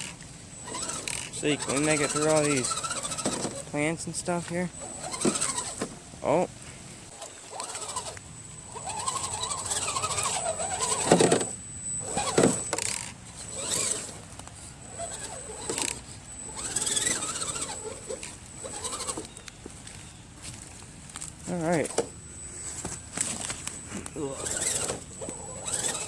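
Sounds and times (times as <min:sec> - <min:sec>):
electric motor whining: 0:00.0 - 0:26.0
thin steady high whine: 0:00.0 - 0:26.0.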